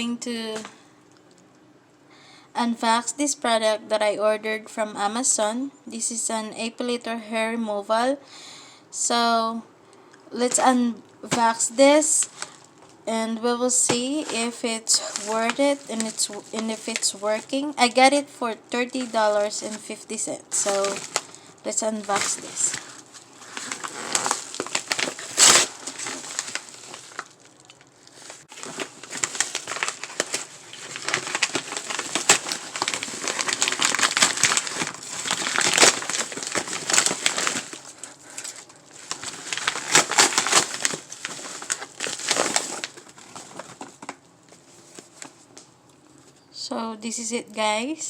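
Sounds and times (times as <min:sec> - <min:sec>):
packaging crinkling and rustling: 0:10.5 - 0:13.1, 0:13.7 - 0:45.7.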